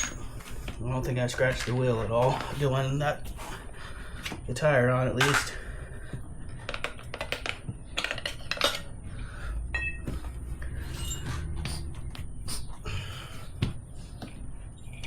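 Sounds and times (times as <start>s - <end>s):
metal tire irons clattering: 0.0s - 2.8s, 9.7s - 12.1s
short metallic ring: 9.7s - 10.1s, 10.9s - 11.9s.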